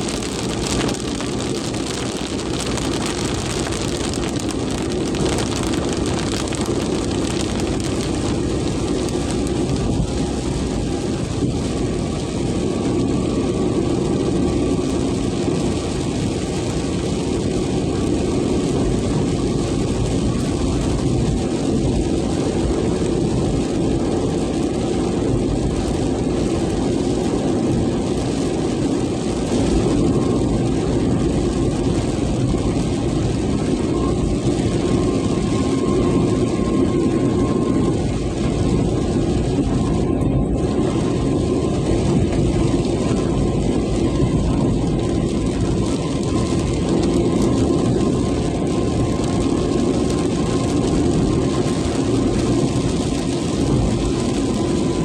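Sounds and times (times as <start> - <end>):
low drone: 0.0 - 24.4
heavy rain in strong wind: 0.0 - 55.0.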